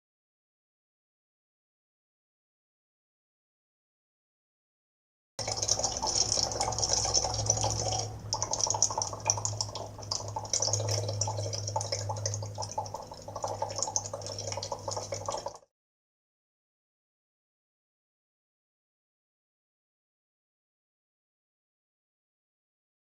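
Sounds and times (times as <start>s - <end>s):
low steady hum: 5.4s - 15.6s
water trickling and dripping: 5.4s - 15.7s.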